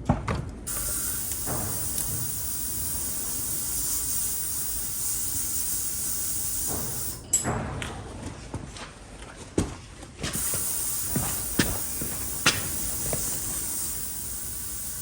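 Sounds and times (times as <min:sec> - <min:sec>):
spray hissing: 0:00.7 - 0:07.3, 0:10.4 - 0:15.0.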